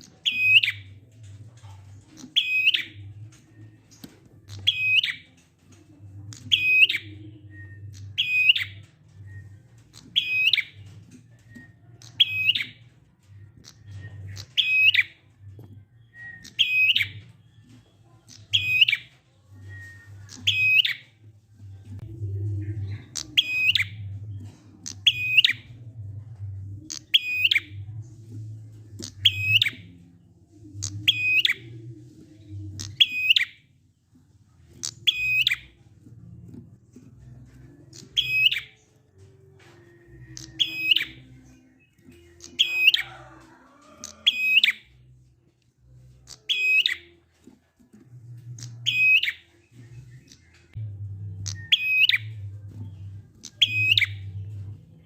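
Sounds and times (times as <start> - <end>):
low hum: 49.6 - 55.0.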